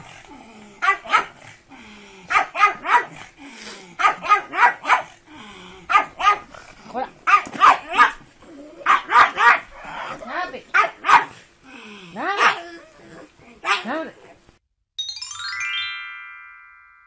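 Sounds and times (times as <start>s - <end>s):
dog barking excitedly: 0.8s - 1.4s, 2.3s - 3.3s, 4.0s - 5.2s, 5.9s - 6.5s, 7.2s - 11.4s, 12.2s - 12.7s, 13.6s - 14.1s.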